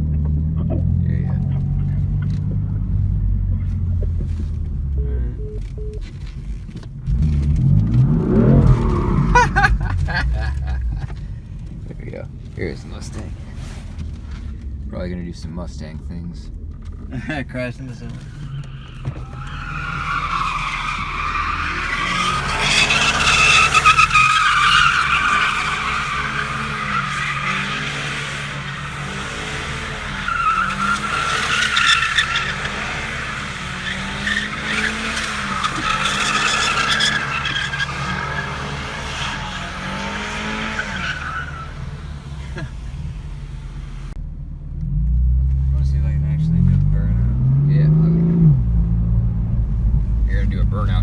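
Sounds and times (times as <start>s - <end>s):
car engine revving: 0.0s - 51.0s
tyres squealing: 17.9s - 42.8s.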